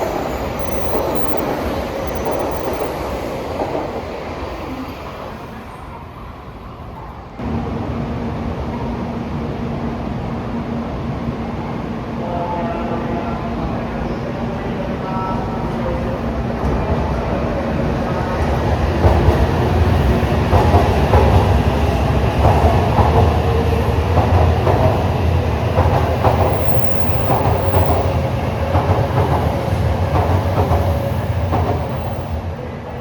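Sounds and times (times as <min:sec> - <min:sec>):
train rumbling: 0:00.0 - 0:33.0
train wheels clattering: 0:16.4 - 0:32.4.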